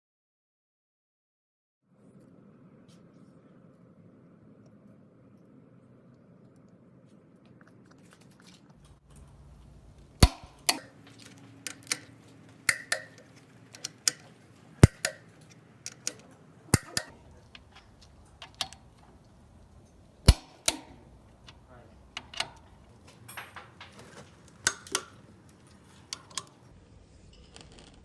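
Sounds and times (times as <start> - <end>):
metal objects clinking and knocking: 10.8 - 17.1, 22.9 - 26.7.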